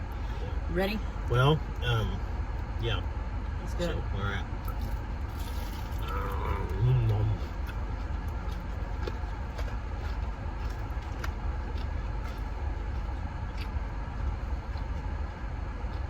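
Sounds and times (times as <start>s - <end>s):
vehicle engine rumble: 0.0s - 16.0s
chewing crunchy food: 4.6s - 16.0s.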